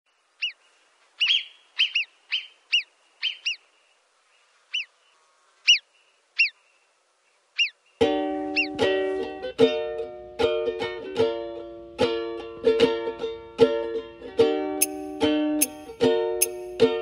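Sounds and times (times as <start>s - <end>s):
bird chirping: 0.1s - 8.9s, 14.8s - 16.8s.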